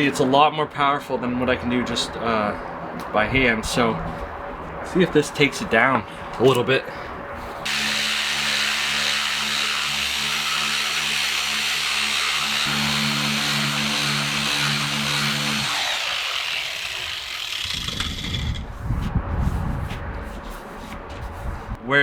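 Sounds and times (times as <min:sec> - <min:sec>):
power sander motor hum: 0:07.6 - 0:18.6.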